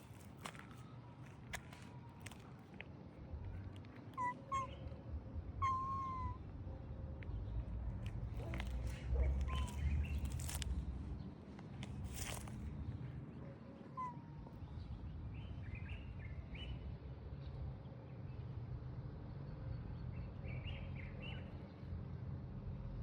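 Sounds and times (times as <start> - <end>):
low background rumble: 3.0 - 13.5
small birds chirping: 4.1 - 5.0, 8.0 - 11.2.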